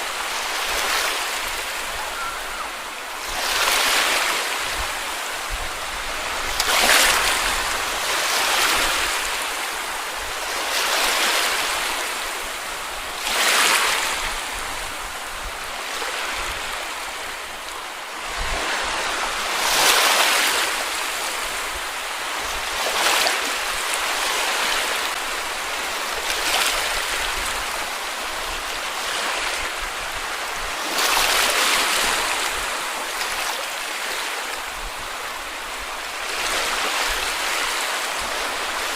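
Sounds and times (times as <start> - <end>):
small waves breaking on sand: 0.0 - 38.9
wind rumble on microphone: 4.6 - 8.1.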